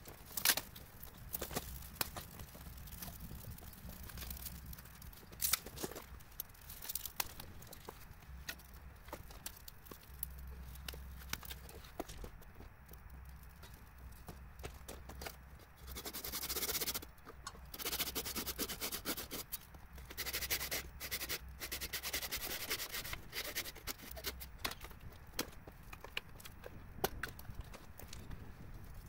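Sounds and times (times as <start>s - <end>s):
rubbing and scraping: 14.6s - 26.7s
small knocks and clicks: 17.0s - 17.7s, 24.2s - 29.0s.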